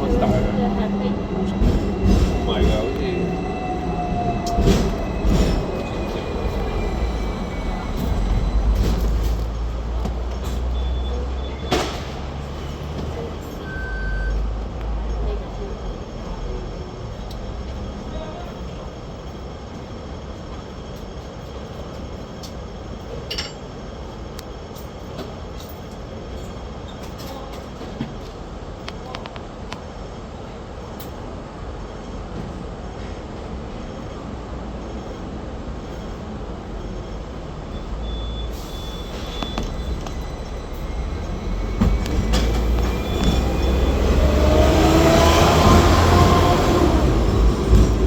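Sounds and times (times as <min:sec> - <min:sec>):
tram rumbling on rails: 0:00.0 - 0:48.0
high wheel squeal: 0:36.9 - 0:45.1.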